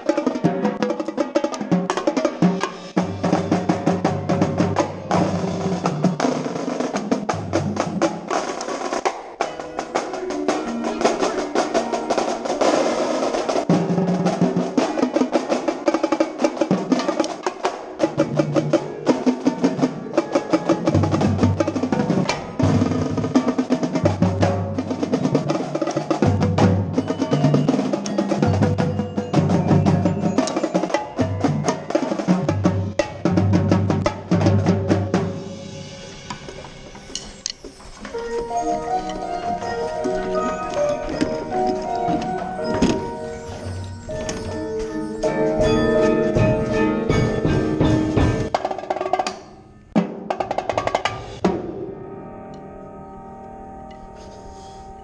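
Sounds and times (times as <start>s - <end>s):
snare and bass drums: 0.0s - 9.4s
rapid tenor drumming: 0.0s - 35.8s, 44.1s - 51.3s.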